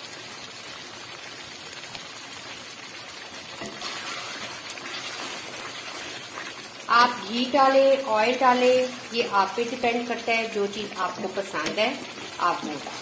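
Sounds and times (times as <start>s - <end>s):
chicken sizzling in oil: 0.0s - 13.0s
wooden spatula stirring pot: 3.5s - 6.9s, 10.1s - 13.0s.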